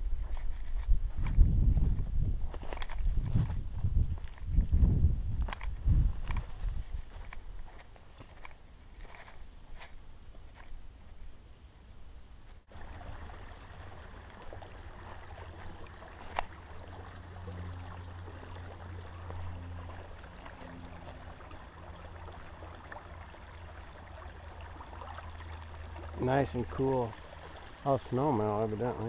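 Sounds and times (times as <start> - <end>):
creek water running: 12.7 - 29.0.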